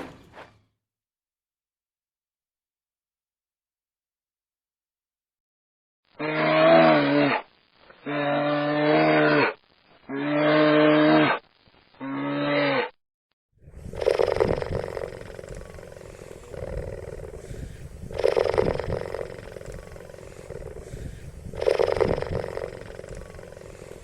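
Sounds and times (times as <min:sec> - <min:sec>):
long pitched animal calls: 0:06.2 - 0:11.4, 0:12.0 - 0:13.0, 0:13.8 - 0:24.0
rough rasping growl: 0:13.6 - 0:24.0.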